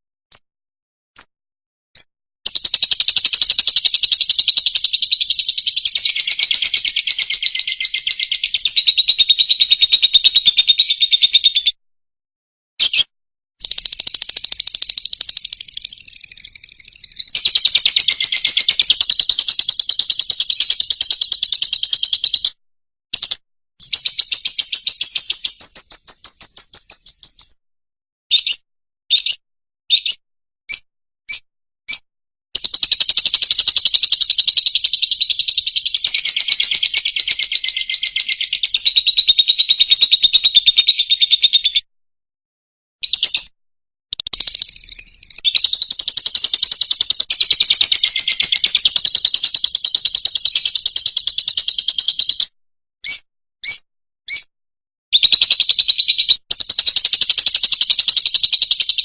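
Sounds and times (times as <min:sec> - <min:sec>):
lovebird chattering chirps: 0:02.5 - 0:11.7, 0:12.8 - 0:22.5, 0:28.3 - 0:32.0, 0:32.6 - 0:41.6, 0:44.1 - 0:52.4, 0:53.0 - 0:54.5.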